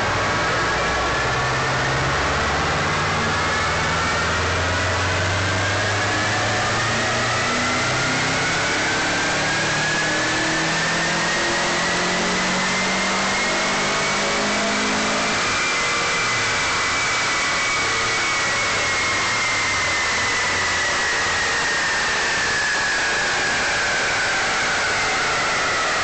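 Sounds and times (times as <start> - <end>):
high whine: 0.0 - 26.0
loud rush of noise: 0.0 - 26.0
turbocharged car engine revving: 0.0 - 26.0.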